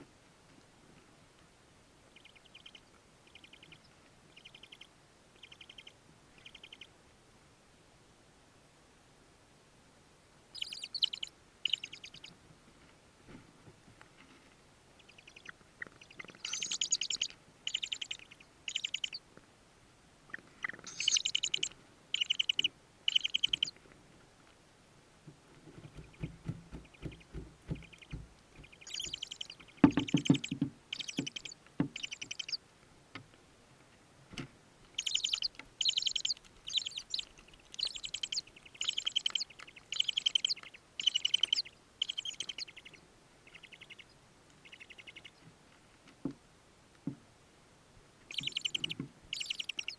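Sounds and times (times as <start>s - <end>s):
owl chicks raspy begging calls: 2.2s - 6.9s, 10.6s - 12.3s, 15.0s - 19.2s, 20.3s - 23.8s, 26.0s - 32.6s, 35.0s - 45.4s, 48.3s - 49.9s.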